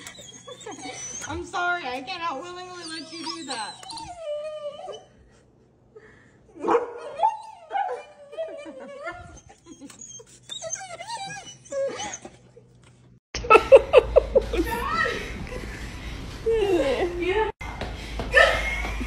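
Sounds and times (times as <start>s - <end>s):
dog whining and whimpering: 0.0s - 1.6s, 2.4s - 5.2s, 7.2s - 12.8s.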